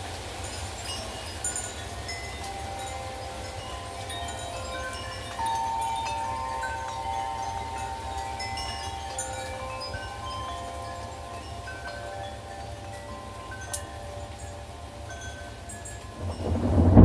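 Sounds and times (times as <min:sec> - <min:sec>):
wind chimes ringing: 0:00.0 - 0:17.0
low rumble: 0:16.2 - 0:17.0.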